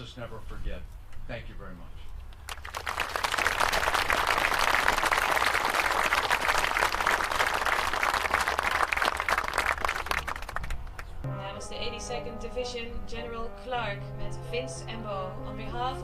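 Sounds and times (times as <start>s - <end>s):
audience applauding: 2.5s - 11.2s.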